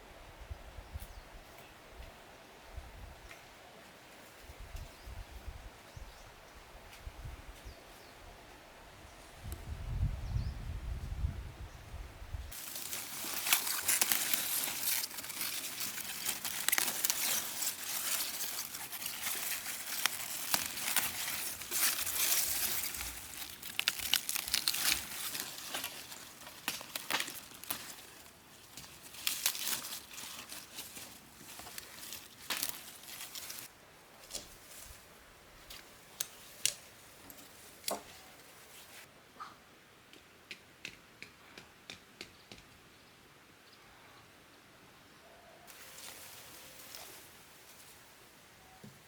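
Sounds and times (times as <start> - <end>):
dry rustling and crinkling: 12.5 - 39.1, 45.7 - 48.1.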